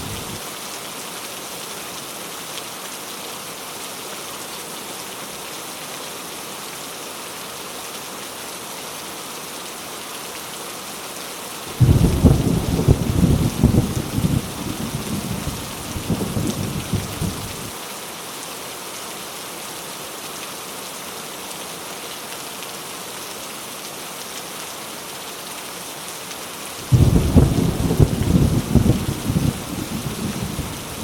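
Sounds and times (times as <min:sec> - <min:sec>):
thunder rumbling: 0:00.0 - 0:00.4, 0:11.8 - 0:17.7, 0:26.9 - 0:31.0
heavy rain falling: 0:00.0 - 0:31.0
loud thunderclap: 0:11.8 - 0:17.7, 0:26.9 - 0:31.0.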